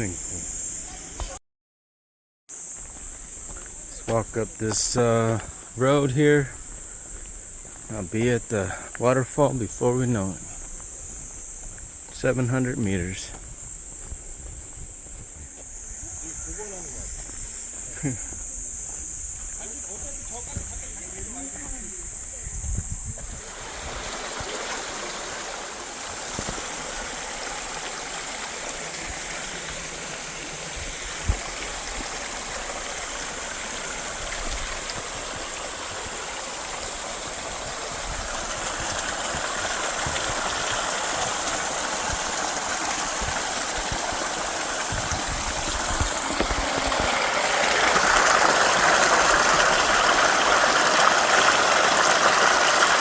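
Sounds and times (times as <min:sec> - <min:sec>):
mountain stream rushing: 0:23.4 - 0:53.0.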